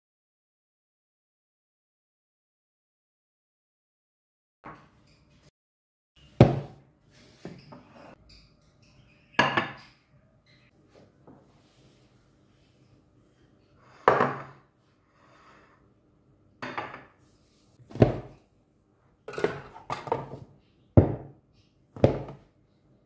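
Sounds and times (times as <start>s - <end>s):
dishes knocking on counter: 17.9s - 18.4s, 21.0s - 21.3s, 22.0s - 22.4s.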